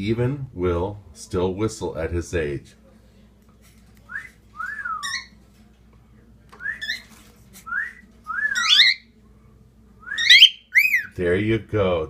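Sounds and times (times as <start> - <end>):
cockatiel whistling: 7.7 - 9.0, 10.1 - 11.1.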